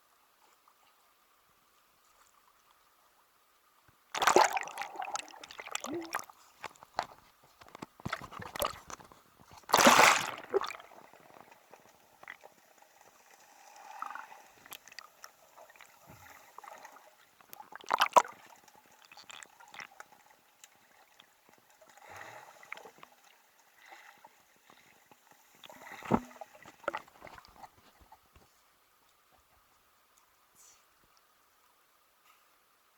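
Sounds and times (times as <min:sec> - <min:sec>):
water splashes: 0:04.1 - 0:23.2, 0:25.5 - 0:28.0
sea water sloshing and gurgling: 0:04.1 - 0:28.3.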